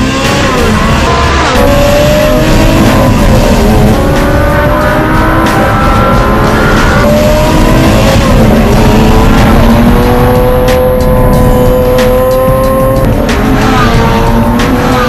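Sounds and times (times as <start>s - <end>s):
racing car engine accelerating: 0.0s - 15.0s.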